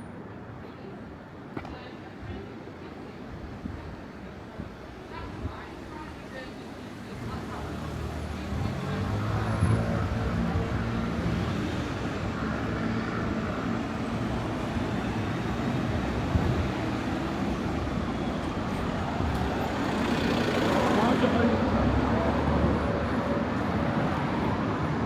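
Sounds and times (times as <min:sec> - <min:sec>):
steady traffic noise: 0:00.0 - 0:25.0
vehicles passing close by: 0:07.2 - 0:25.0.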